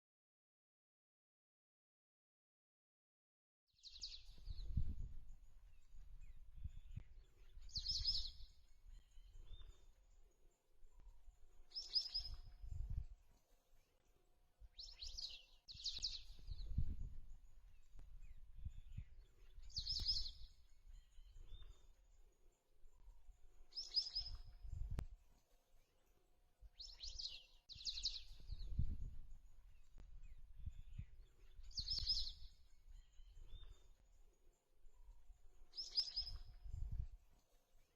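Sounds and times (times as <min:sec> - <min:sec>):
wind rumble on microphone: 0:03.8 - 0:09.9, 0:11.7 - 0:13.3, 0:14.8 - 0:21.9, 0:23.7 - 0:25.2, 0:26.8 - 0:33.9, 0:35.7 - 0:37.3.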